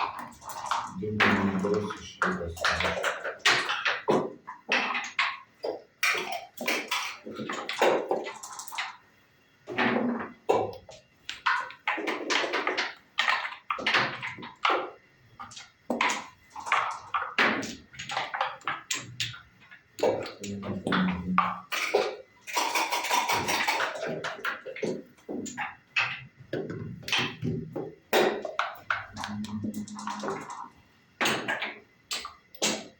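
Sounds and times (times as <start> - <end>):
dice and checkers clattering: 10.0 - 32.9.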